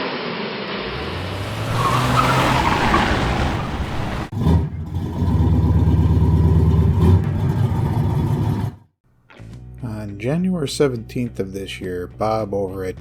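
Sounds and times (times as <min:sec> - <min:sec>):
rushing noise: 0:00.7 - 0:04.3
car engine throbbing: 0:00.8 - 0:08.7.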